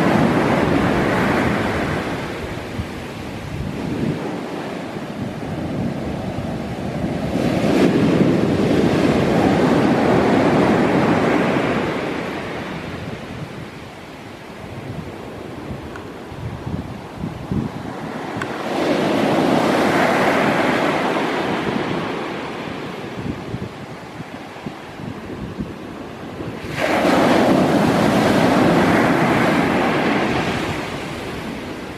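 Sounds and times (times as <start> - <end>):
ocean waves crashing on shore: 0.0 - 31.9
sea wave breaking on shore: 26.6 - 31.9.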